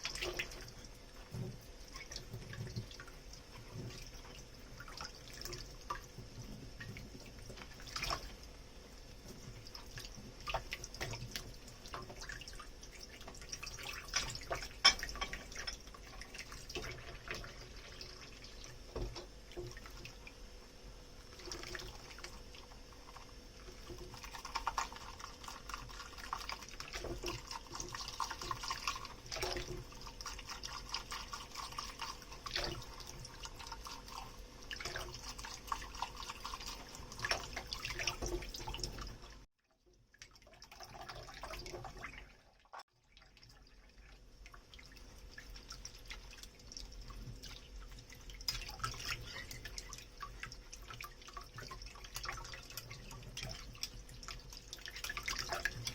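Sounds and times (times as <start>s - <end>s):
water dripping: 0.0s - 20.5s, 43.0s - 55.9s
tap water running into sink: 9.3s - 20.3s, 21.2s - 39.3s
dishes clinking: 14.1s - 15.8s.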